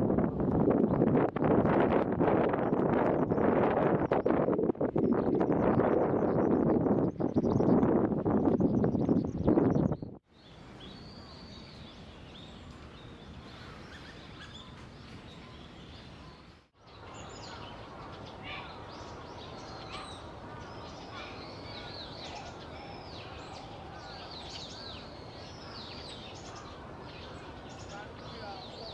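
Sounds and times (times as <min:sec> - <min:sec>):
outdoor background noise: 0:00.0 - 0:28.9
small songbirds chirping: 0:00.7 - 0:28.9.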